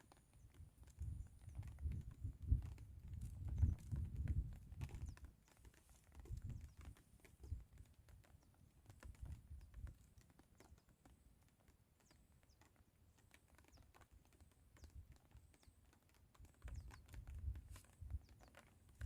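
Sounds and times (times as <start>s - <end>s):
faint clicks: 0.0s - 19.0s
wind buffeting microphone: 1.0s - 5.2s, 6.2s - 7.6s.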